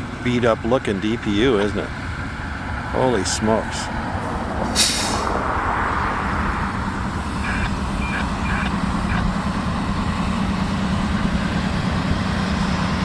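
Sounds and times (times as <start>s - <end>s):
diesel locomotive engine rumble: 0.0s - 13.0s
short high beeps or squeals: 7.4s - 9.2s.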